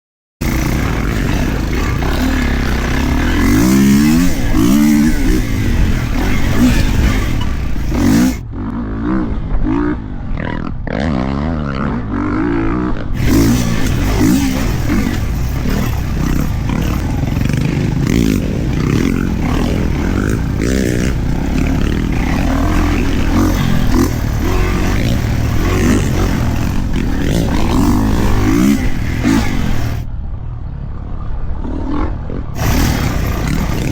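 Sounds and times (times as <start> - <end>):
dirt bike engine revving: 0.4 - 8.8, 13.1 - 30.1, 32.6 - 33.9.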